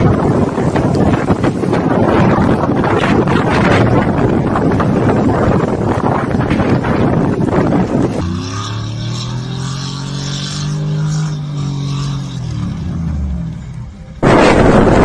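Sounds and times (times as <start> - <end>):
wind on microphone: 0.0 - 13.4, 14.2 - 15.0
vehicle engine passing: 4.6 - 15.0.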